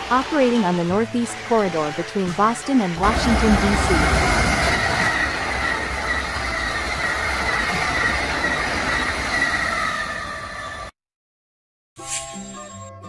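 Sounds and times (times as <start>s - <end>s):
train passing on rails: 0.0s - 10.9s
high wavering whine: 3.0s - 10.9s.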